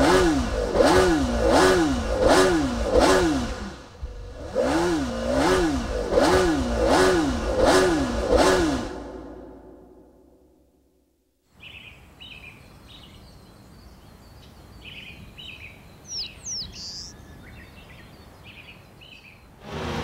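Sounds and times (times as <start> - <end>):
outdoor background hiss: 0.0 - 20.0
small birds chirping: 11.5 - 19.6
high whistled bird calls: 14.8 - 19.5.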